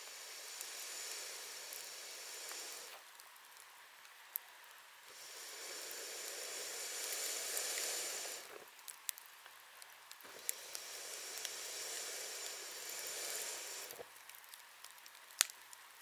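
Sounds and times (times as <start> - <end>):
campfire hissing and crackling: 0.0 - 16.0.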